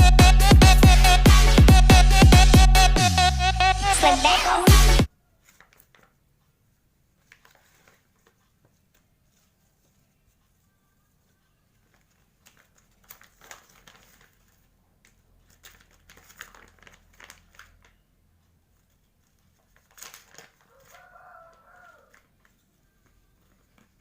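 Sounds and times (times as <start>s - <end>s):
plastic snack bag crinkling: 5.4s - 6.2s, 7.2s - 10.4s, 11.3s - 18.0s, 18.7s - 24.0s.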